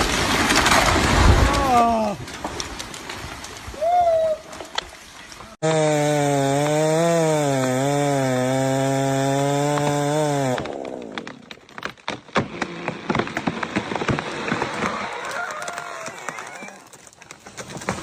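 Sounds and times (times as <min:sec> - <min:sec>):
sharp crackles and snaps: 0:00.0 - 0:05.6
chainsaw cutting wood: 0:05.6 - 0:16.5.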